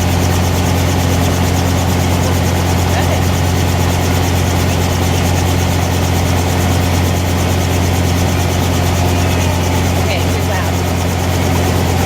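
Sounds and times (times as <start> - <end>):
helicopter engine and rotors: 0.0 - 12.0.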